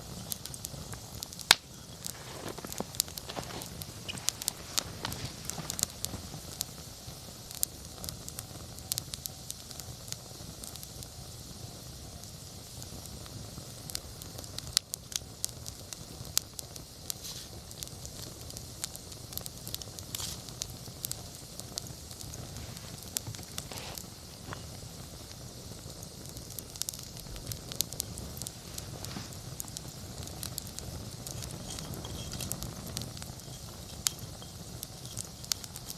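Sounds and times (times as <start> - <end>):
fire crackles and pops: 0.0 - 35.9
steady fire hiss: 0.0 - 35.9.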